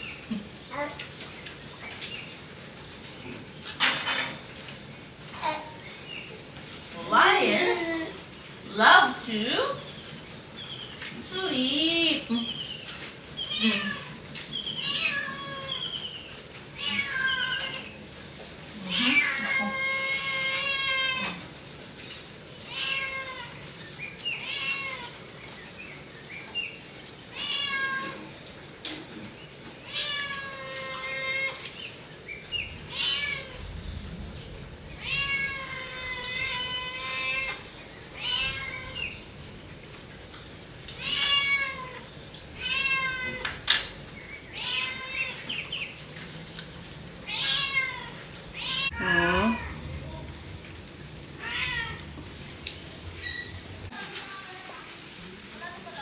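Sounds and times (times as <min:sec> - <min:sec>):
cat meowing: 0:13.5 - 0:14.2, 0:14.8 - 0:15.9, 0:16.8 - 0:17.9, 0:18.8 - 0:21.5, 0:22.7 - 0:23.6, 0:24.4 - 0:25.2, 0:27.3 - 0:28.3, 0:29.9 - 0:31.7, 0:32.9 - 0:33.6, 0:35.0 - 0:37.6, 0:38.2 - 0:39.2, 0:40.9 - 0:43.7, 0:44.5 - 0:45.5, 0:47.3 - 0:49.8, 0:51.4 - 0:52.1.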